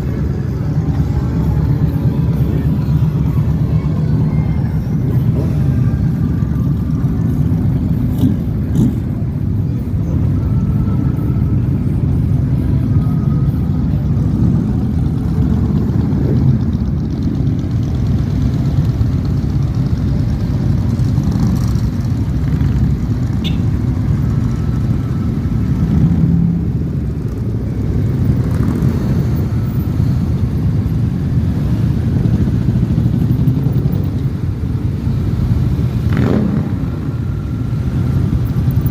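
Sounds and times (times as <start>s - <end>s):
motorcycle engines running: 0.0s - 38.9s.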